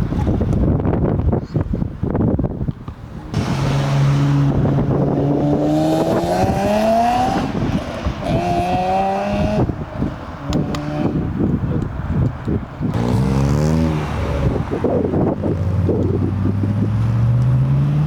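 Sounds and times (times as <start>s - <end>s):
car engine accelerating hard: 3.3s - 9.7s, 12.9s - 18.0s.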